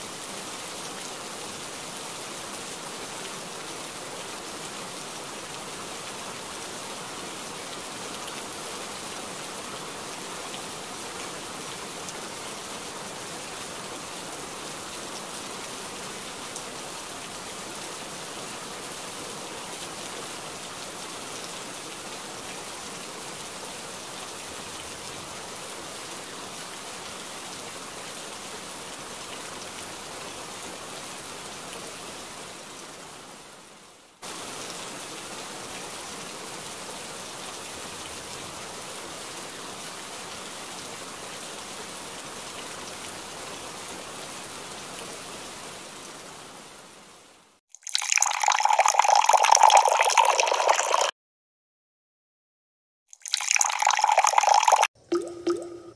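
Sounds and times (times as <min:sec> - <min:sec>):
water jet splashing on toys: 0:47.7 - 0:51.1, 0:53.1 - 0:55.5.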